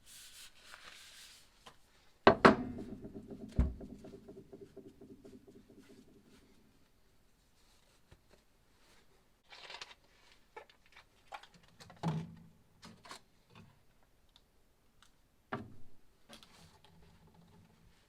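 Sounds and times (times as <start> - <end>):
knock with low ring: 2.3 - 5.5
hard objects knocking on workbench: 2.3 - 5.7.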